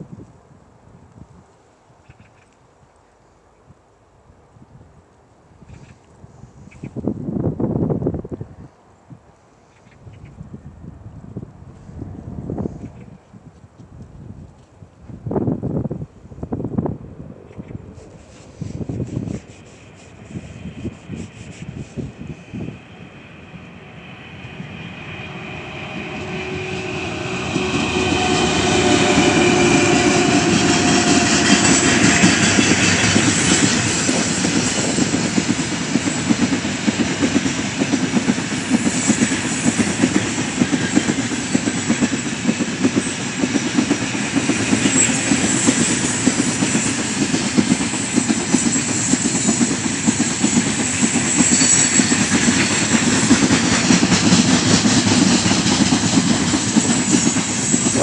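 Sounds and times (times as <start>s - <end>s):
electric locomotive whine: 13.9s - 58.0s.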